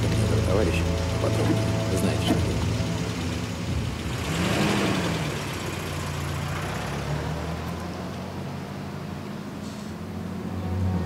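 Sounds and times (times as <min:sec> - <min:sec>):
engine idling: 0:00.0 - 0:08.4.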